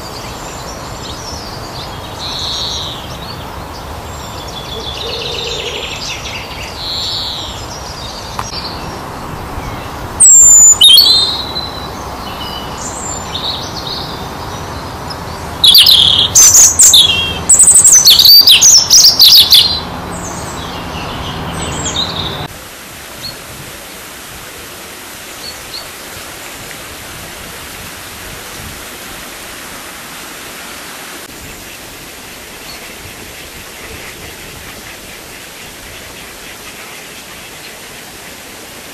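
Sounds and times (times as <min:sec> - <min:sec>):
songbirds singing and calling: 0:00.0 - 0:22.5
steady hiss: 0:22.4 - 0:38.9.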